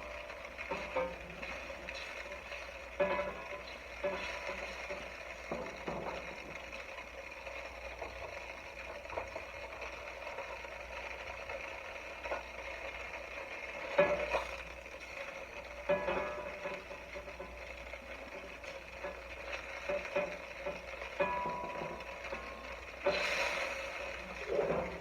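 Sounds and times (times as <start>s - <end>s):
utensil knocking and scraping a pot: 0.0s - 6.9s, 13.9s - 25.0s
kitchen hum: 0.0s - 25.0s.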